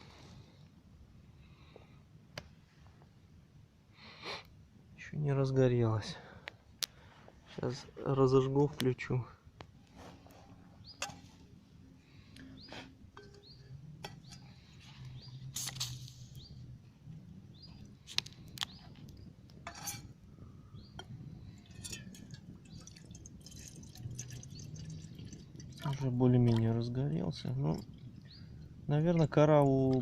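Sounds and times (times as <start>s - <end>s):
small birds chirping: 10.6s - 30.0s
sharp clicks and snaps: 18.1s - 19.6s.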